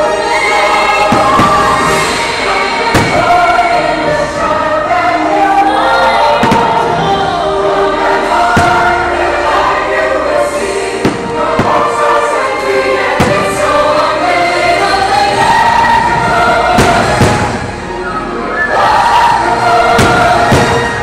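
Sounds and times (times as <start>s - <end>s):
choir over orchestral music: 0.0s - 21.0s
firework bursts thudding: 1.1s - 3.7s, 11.0s - 12.2s, 13.1s - 13.8s, 16.7s - 17.8s, 19.9s - 21.0s.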